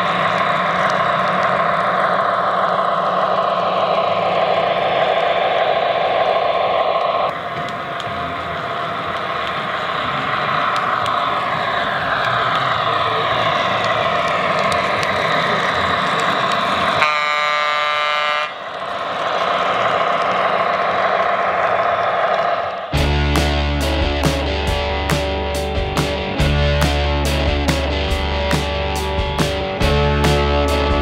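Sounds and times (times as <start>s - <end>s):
model train diesel engine sound: 0.0s - 31.0s
locomotive horn: 17.0s - 18.6s.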